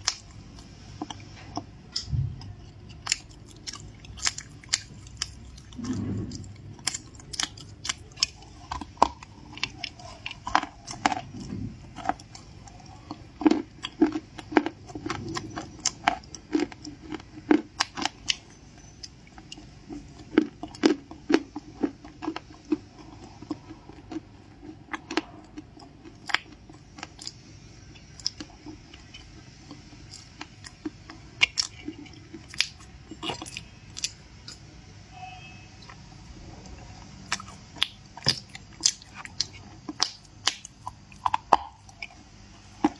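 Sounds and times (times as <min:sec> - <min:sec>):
crunchy cookie chewing: 0:00.0 - 0:34.8, 0:35.4 - 0:42.9.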